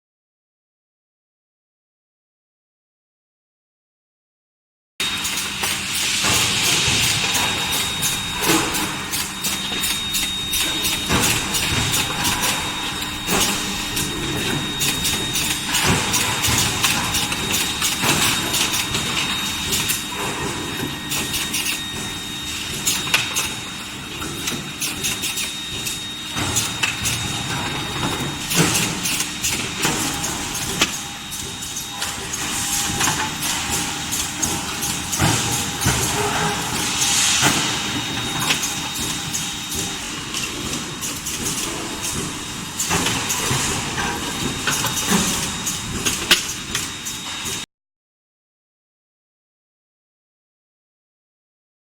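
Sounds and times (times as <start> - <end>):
low machine hum: 5.0 - 24.1
high-pitched machine tone: 5.0 - 47.7.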